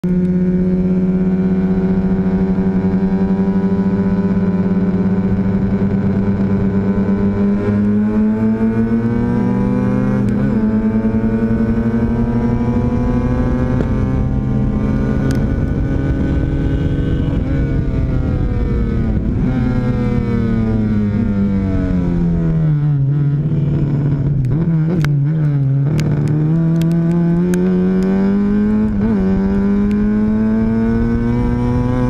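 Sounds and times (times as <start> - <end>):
race car engine revving: 0.2 - 32.0.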